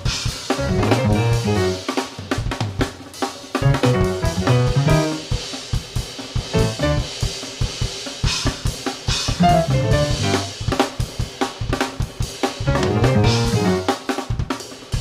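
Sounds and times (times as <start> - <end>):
drum kit played fast: 0.0 - 15.0
backing track with pitched notes: 0.5 - 2.1, 3.5 - 5.6, 6.4 - 7.3, 9.3 - 10.8, 12.7 - 14.1.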